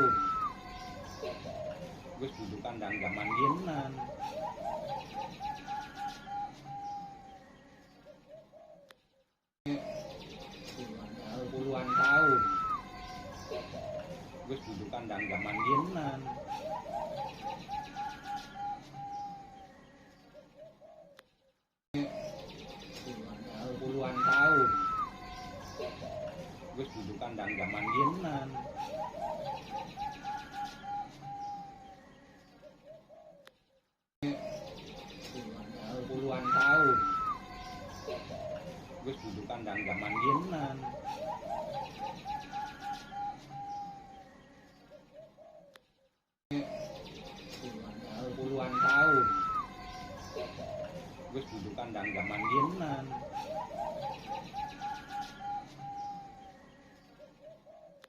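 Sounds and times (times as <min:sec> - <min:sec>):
dove cooing: 0:00.0 - 0:08.9, 0:11.0 - 0:21.2, 0:22.0 - 0:33.5, 0:34.2 - 0:45.8, 0:47.8 - 0:58.0.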